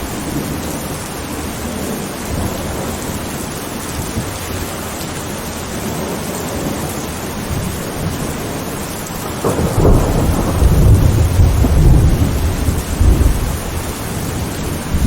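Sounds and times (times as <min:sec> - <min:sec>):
heavy rain: 0:00.0 - 0:15.0
thunder rumbling: 0:05.9 - 0:15.0.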